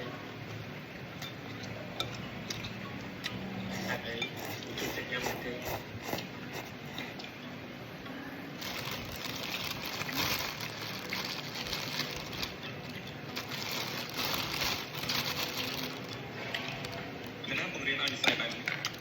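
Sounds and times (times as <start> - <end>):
chewing: 1.2 - 7.5
crinkling: 8.6 - 17.4.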